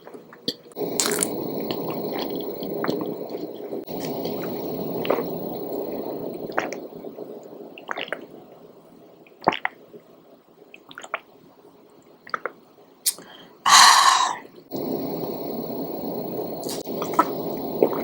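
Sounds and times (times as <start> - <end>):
mouth clicks and lip smacks: 1.0 - 1.3
wet chewing mouth sounds: 1.0 - 1.4.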